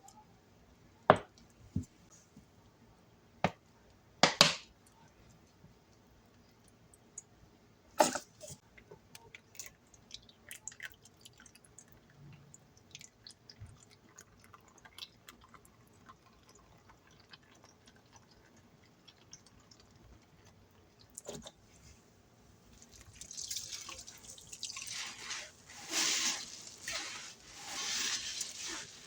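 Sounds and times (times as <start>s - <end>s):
wet crackles and drips: 8.6s - 21.7s, 22.7s - 29.0s.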